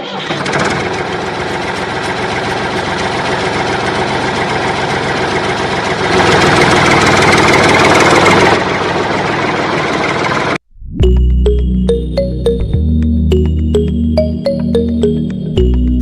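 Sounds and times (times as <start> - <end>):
motor running with rattle: 0.0 - 10.6.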